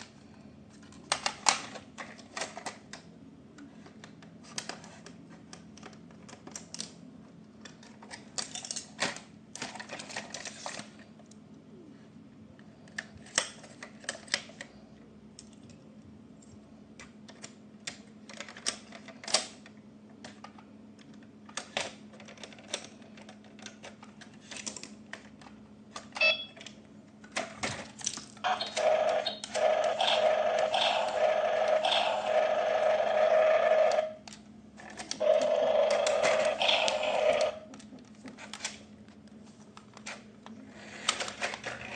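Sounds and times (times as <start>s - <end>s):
plastic toy parts clicking: 3.7s - 7.0s, 7.6s - 11.0s, 17.0s - 32.3s.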